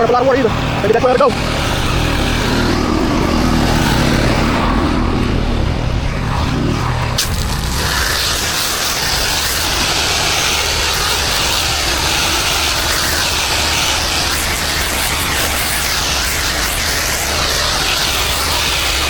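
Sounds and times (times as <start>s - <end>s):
low engine drone: 0.0s - 19.0s
pressure washer spraying hiss: 7.2s - 19.0s.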